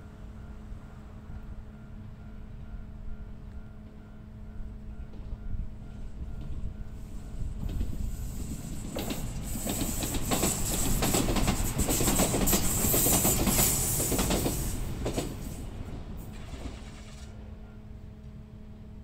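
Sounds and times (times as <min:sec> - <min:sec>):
train wheels clacking over rail joints: 0:07.6 - 0:15.5.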